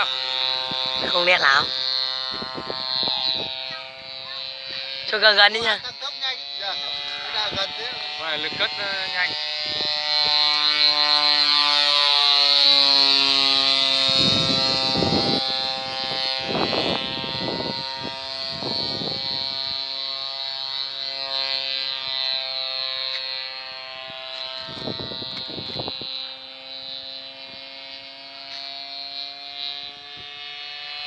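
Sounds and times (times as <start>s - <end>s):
bursts of rough noise: 0.0s - 31.0s
high-pitched two-stroke engine buzz: 0.0s - 31.0s.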